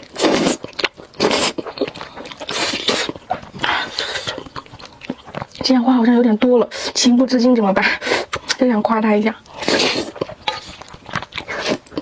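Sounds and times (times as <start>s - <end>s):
noodle slurping: 0.0s - 5.5s, 9.5s - 12.0s
wet chewing and smacking: 0.0s - 12.0s.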